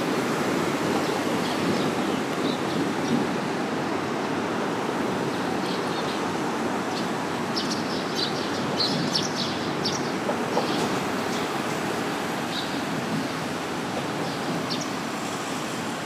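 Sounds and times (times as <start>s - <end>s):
small birds chirping: 6.9s - 11.8s.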